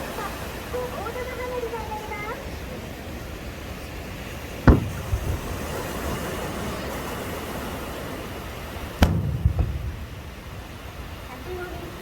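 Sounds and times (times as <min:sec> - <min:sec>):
steady background noise: 0:00.0 - 0:12.0
fireworks bursting: 0:04.6 - 0:06.2, 0:08.9 - 0:11.3
low rumbling echo: 0:04.7 - 0:05.9, 0:09.0 - 0:11.4.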